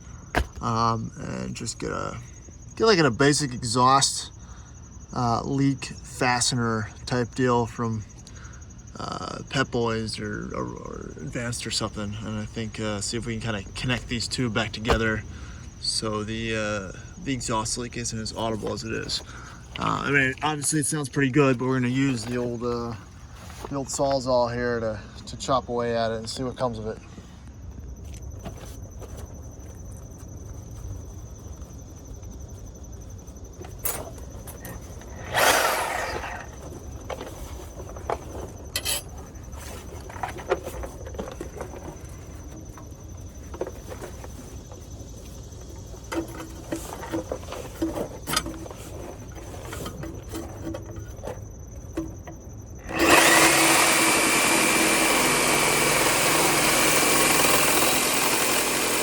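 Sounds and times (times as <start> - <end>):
reciprocating saw cutting metal: 35.1 - 36.6, 52.8 - 59.0.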